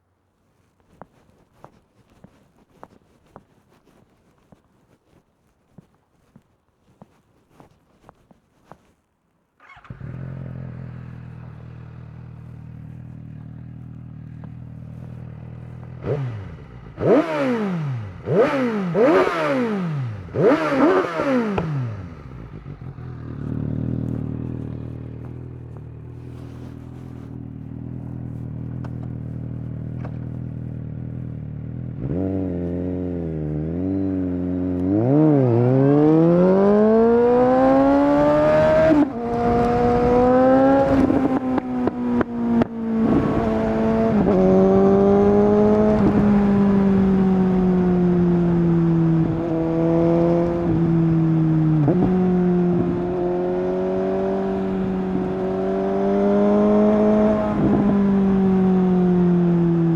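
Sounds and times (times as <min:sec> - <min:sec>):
motorcycle engine revving: 0:09.6 - 0:59.9
exhaust popping: 0:20.2 - 0:31.4.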